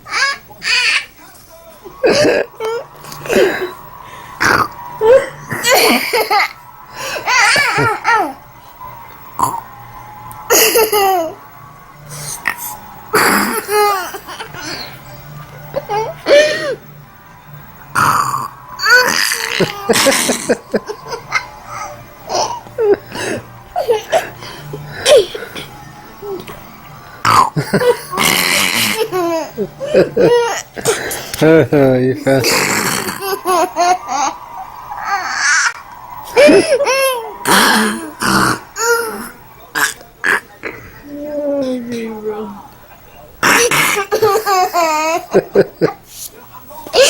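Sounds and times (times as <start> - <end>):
boy laughing: 5.0 - 8.4, 13.2 - 14.9, 18.8 - 21.6, 27.6 - 31.0, 32.2 - 34.4, 35.0 - 38.2
small child laughing: 32.4 - 34.3
boy snorting like a pig: 37.5 - 41.0.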